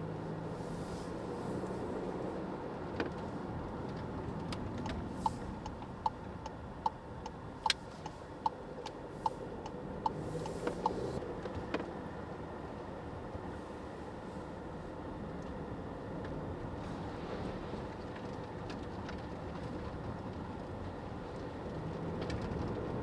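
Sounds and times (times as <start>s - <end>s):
car driving heard from inside: 0.0s - 23.0s
turn signal ticking: 3.8s - 11.2s.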